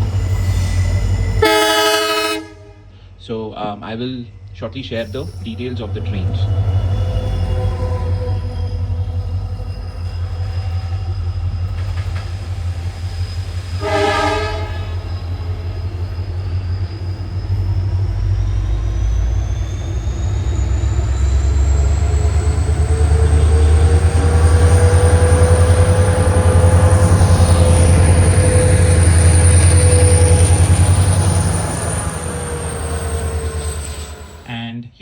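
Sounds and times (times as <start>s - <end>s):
train passing: 0.0s - 34.8s
locomotive horn blast: 1.4s - 3.1s, 13.8s - 15.2s
rising whine: 14.7s - 34.5s.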